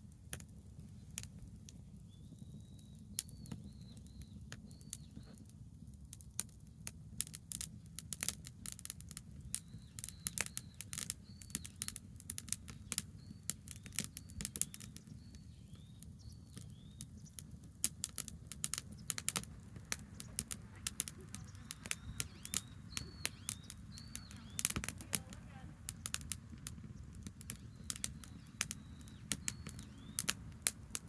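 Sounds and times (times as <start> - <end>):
campfire crackling and popping: 0.0 - 31.0
bird calling: 18.8 - 26.1, 26.9 - 30.5.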